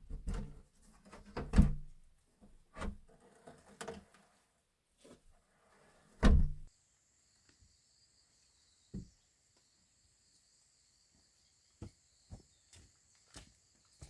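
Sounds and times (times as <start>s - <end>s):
loud thump: 6.2s - 6.7s
insect trill: 6.7s - 14.0s.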